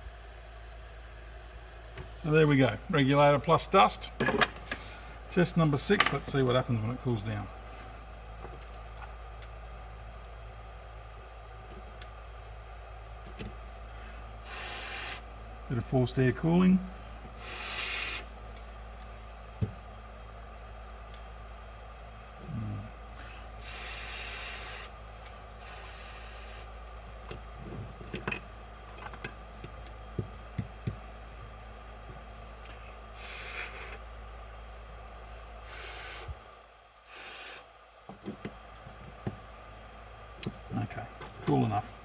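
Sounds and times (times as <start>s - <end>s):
steady low hum: 0.0s - 42.0s
forced air hissing: 14.4s - 15.3s, 17.3s - 18.4s, 23.2s - 26.8s, 32.7s - 34.1s, 35.6s - 37.8s.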